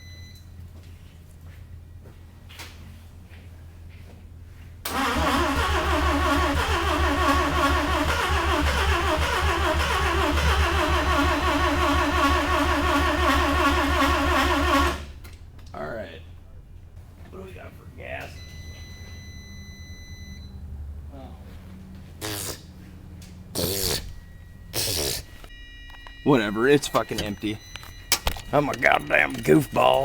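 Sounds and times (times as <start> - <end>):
engine starter cranking: 4.9 - 15.4.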